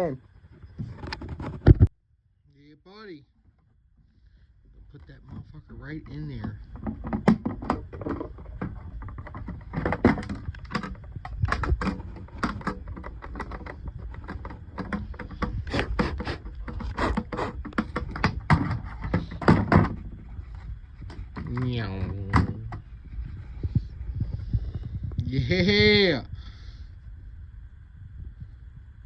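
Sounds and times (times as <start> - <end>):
knocks and clatter of parts: 0.4 - 1.9, 4.9 - 24.9
low handling rumble: 17.6 - 29.0.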